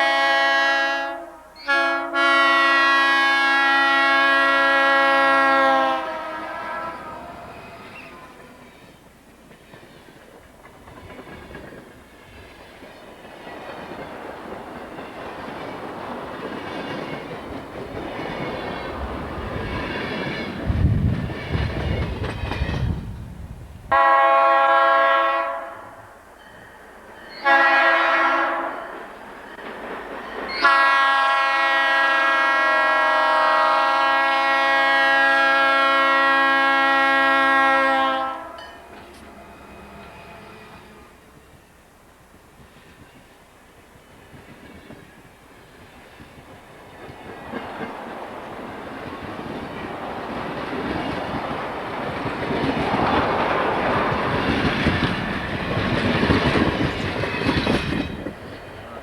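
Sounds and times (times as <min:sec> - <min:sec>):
train air horn blasts: 0:00.0 - 0:08.7, 0:23.9 - 0:26.2, 0:27.4 - 0:28.9, 0:30.5 - 0:41.5
diesel locomotive rumble: 0:17.3 - 0:24.3.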